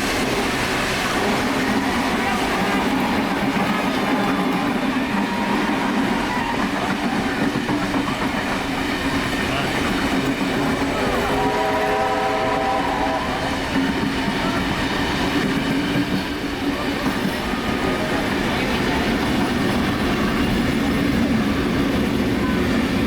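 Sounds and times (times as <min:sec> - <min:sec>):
train rumbling on rails: 0:00.0 - 0:23.0
steam locomotive whistle: 0:10.8 - 0:15.2.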